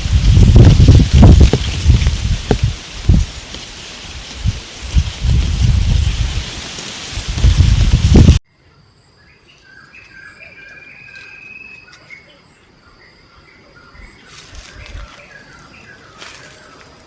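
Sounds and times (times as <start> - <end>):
rain rushing: 0.0 - 8.4
insects trilling: 0.0 - 17.0
birds chirping: 9.2 - 17.0.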